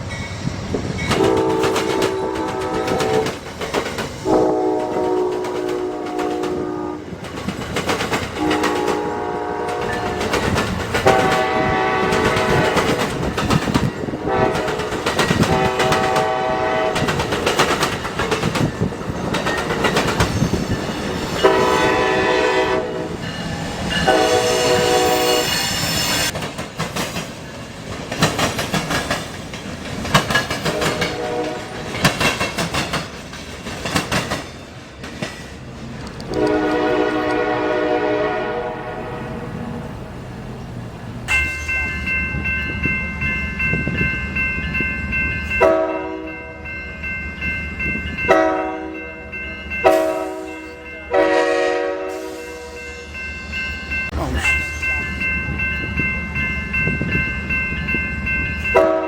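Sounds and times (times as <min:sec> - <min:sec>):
train wheels clicking over rail joints: 0:00.0 - 0:22.1, 0:23.4 - 0:37.4
train horn blasts: 0:01.1 - 0:03.4, 0:04.2 - 0:07.2, 0:08.4 - 0:13.1, 0:14.1 - 0:17.3, 0:21.4 - 0:23.4, 0:24.0 - 0:26.3, 0:30.6 - 0:32.0, 0:36.3 - 0:39.8, 0:45.6 - 0:46.7, 0:48.3 - 0:53.2, 0:58.7 - 0:59.0.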